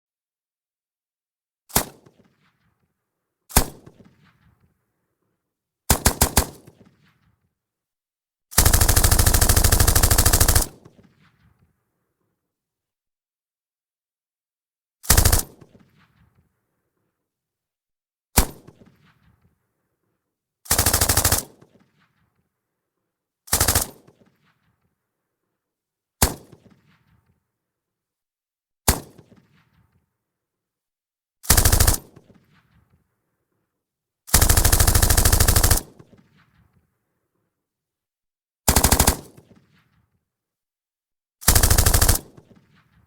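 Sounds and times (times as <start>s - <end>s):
distant machine gun firing: 8.6s - 11.1s, 31.5s - 32.4s, 34.4s - 36.2s, 38.7s - 39.6s, 41.5s - 43.0s.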